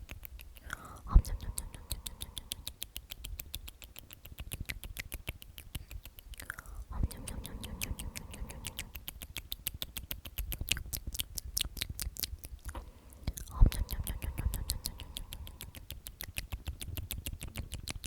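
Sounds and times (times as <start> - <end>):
whispered mouth clicks and lip smacks: 0.0 - 18.0
soft vocal glide: 0.6 - 2.8, 6.5 - 9.4, 12.8 - 16.1.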